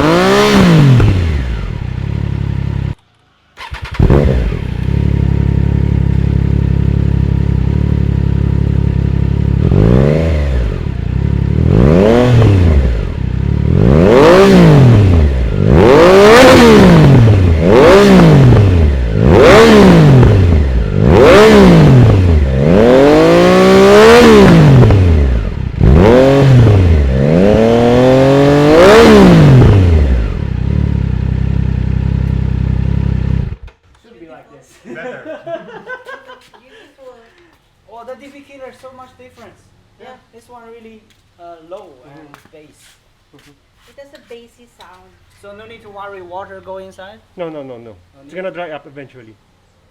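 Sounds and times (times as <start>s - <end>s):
motorcycle engine idling and revving: 0.0s - 33.8s.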